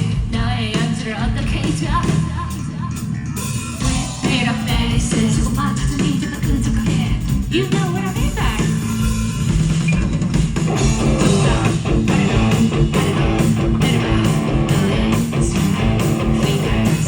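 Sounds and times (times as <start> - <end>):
electric bass: 0.0 - 17.0
steady drum beat: 0.0 - 17.0
strummed guitar: 10.7 - 17.0.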